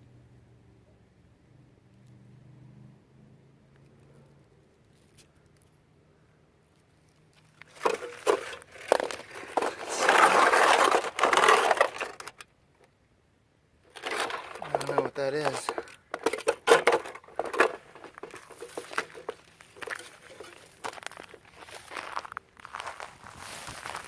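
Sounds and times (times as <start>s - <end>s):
scraping and crinkling handling: 7.1s - 12.4s, 13.9s - 24.0s.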